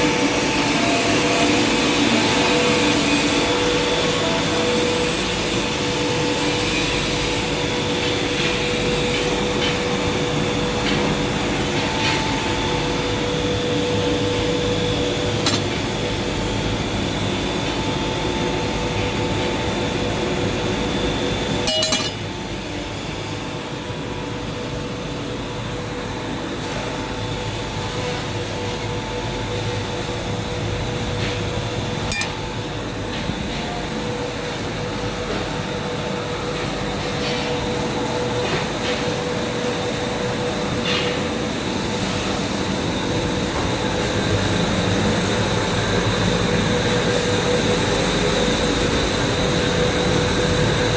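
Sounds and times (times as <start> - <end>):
industrial machinery droning: 0.0 - 50.9
sharp metallic clinks: 21.7 - 22.2.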